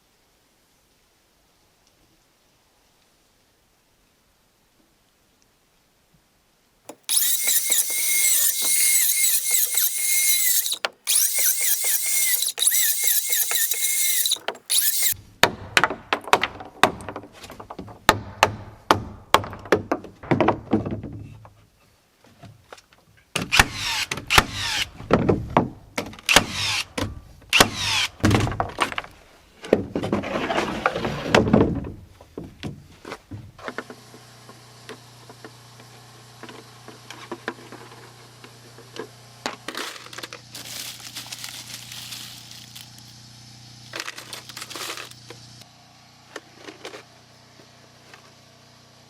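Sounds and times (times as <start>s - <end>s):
power tool whining: 6.9s - 15.2s.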